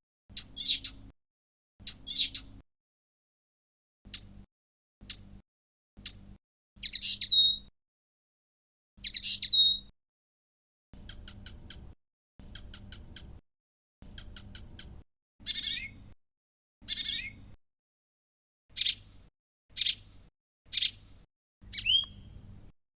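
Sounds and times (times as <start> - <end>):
warbler singing: 0.3 - 1.1, 1.8 - 2.6, 6.8 - 7.7, 9.0 - 9.9, 11.0 - 13.4, 14.1 - 16.1, 16.8 - 17.5, 18.7 - 22.5.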